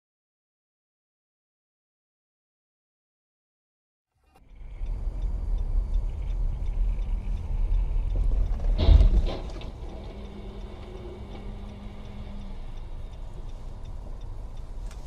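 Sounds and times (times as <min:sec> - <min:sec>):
car interior rumble: 0:04.3 - 0:15.0.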